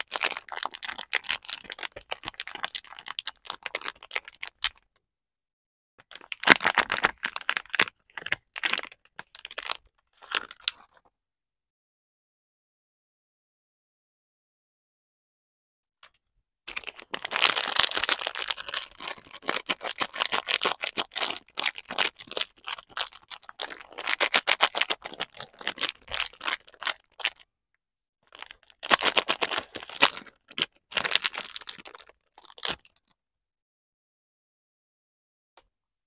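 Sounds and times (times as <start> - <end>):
packaging crinkling and tearing: 0.0 - 4.8, 6.1 - 11.0, 16.7 - 27.4, 28.3 - 33.0.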